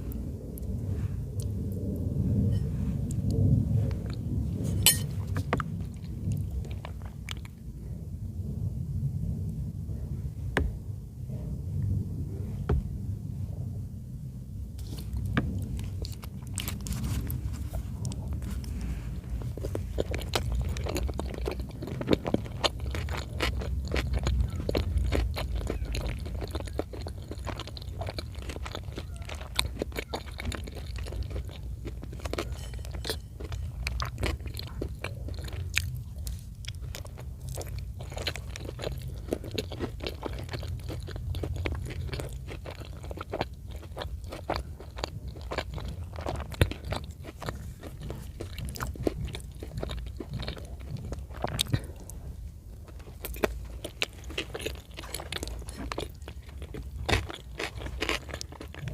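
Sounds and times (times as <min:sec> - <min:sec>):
close chewing with mouth smacks: 0:03.0 - 0:07.7, 0:14.8 - 0:58.9.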